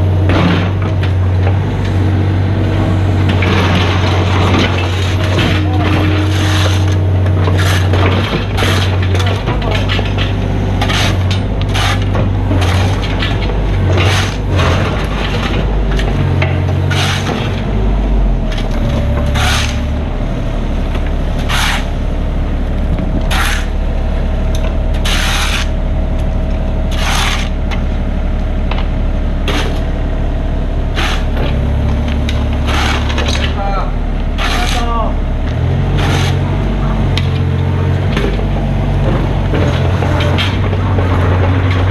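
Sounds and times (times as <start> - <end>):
diesel engine running: 0.0 - 41.9
sharp scraping or knocking: 3.4 - 16.1, 16.7 - 17.6, 18.8 - 20.0, 21.4 - 22.0, 23.2 - 23.8, 25.0 - 25.7, 26.9 - 27.6, 31.0 - 31.4, 32.6 - 33.5, 34.4 - 35.0, 35.9 - 37.0.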